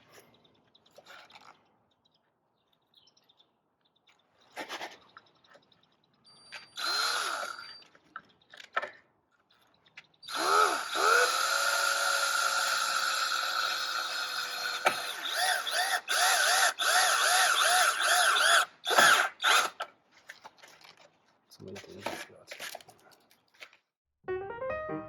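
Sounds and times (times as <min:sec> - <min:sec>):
power drill driving screws: 0:06.6 - 0:07.9, 0:10.3 - 0:19.9.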